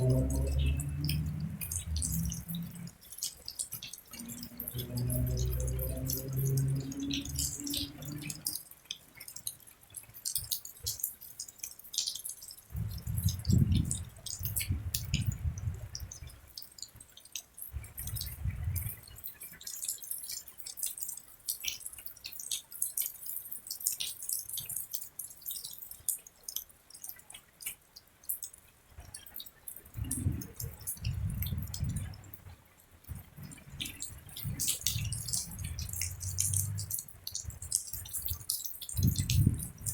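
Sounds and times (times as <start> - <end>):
rain drops ticking: 0.0 - 39.9
low rumbles: 30.0 - 32.5.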